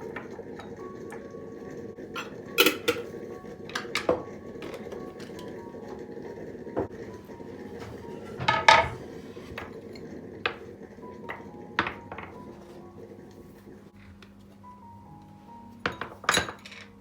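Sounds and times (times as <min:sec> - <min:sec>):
dishes and cutlery clinking: 0:02.2 - 0:05.7, 0:07.7 - 0:10.7, 0:15.8 - 0:17.0.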